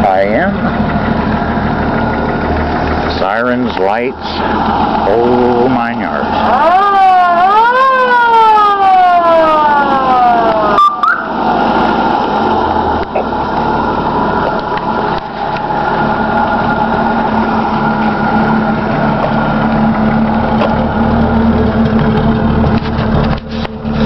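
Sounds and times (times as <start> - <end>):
fire truck engine idling: 0.0 - 24.0
fire truck siren: 4.3 - 22.6.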